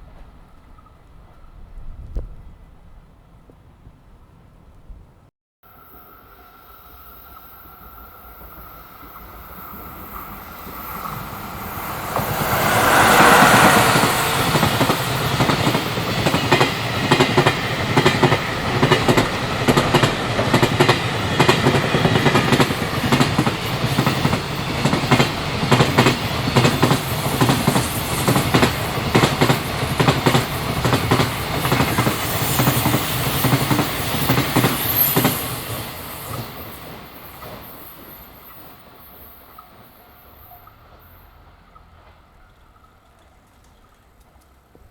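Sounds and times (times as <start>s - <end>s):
freight train passing: 5.7s - 44.9s
wheels clicking over rail joints: 40.6s - 44.9s.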